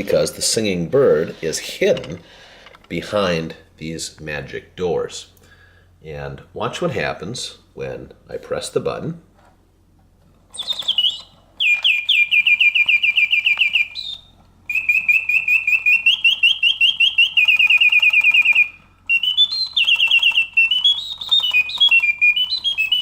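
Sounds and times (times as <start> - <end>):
mechanical bird whistling trills: 10.5 - 23.0.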